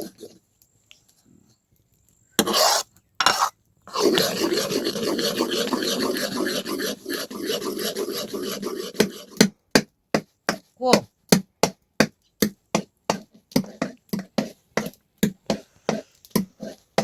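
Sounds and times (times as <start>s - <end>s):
scraping strokes: 0.0s - 0.4s, 2.4s - 9.4s, 15.5s - 16.9s.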